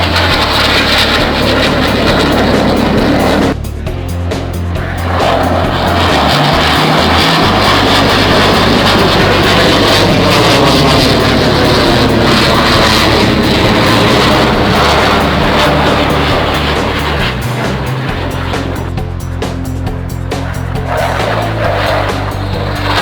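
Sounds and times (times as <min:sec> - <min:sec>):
jet aircraft roaring past: 0:00.0 - 0:23.0.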